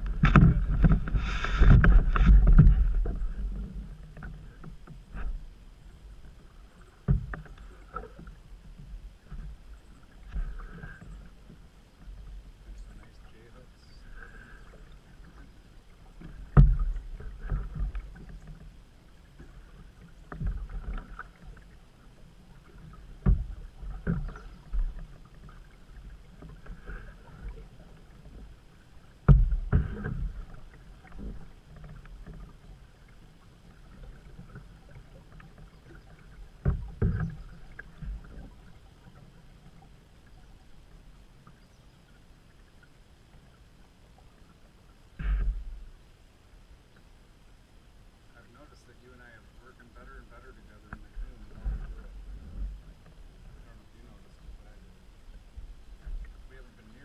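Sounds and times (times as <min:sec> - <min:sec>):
paddle knocking on canoe hull: 0:00.0 - 0:05.4, 0:07.0 - 0:09.6, 0:16.1 - 0:21.7, 0:22.6 - 0:28.6, 0:29.2 - 0:32.8, 0:33.7 - 0:38.6
low water noise: 0:00.0 - 0:57.0.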